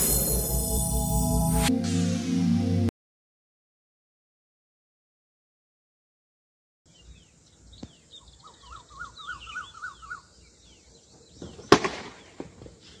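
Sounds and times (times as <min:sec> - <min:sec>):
sudden loud burst: 0:00.0 - 0:02.8
birds chirping: 0:06.9 - 0:12.5.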